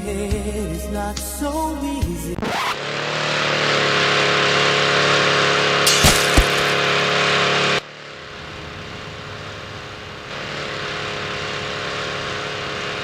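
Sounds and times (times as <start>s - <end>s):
motor running with steady hum: 2.8s - 13.0s
thumps: 5.8s - 6.9s.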